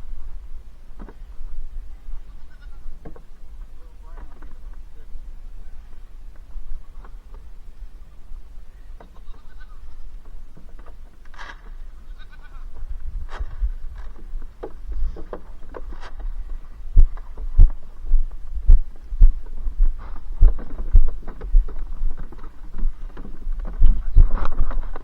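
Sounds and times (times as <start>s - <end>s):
low thumps and knocks: 12.8s - 25.0s.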